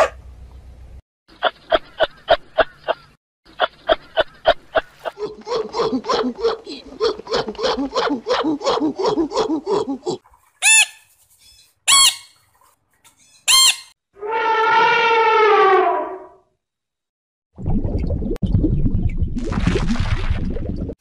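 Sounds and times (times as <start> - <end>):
parrot shrill screeches: 10.6 - 11.1, 11.9 - 12.4, 13.4 - 15.8
elephant trumpeting: 13.5 - 16.3.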